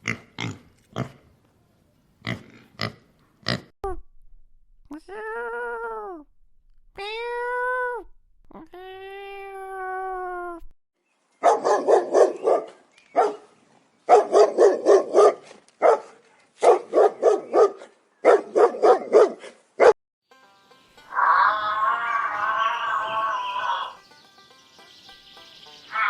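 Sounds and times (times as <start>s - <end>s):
dog barking: 11.4s - 13.5s, 14.1s - 20.0s
music: 20.3s - 21.2s, 23.9s - 26.0s.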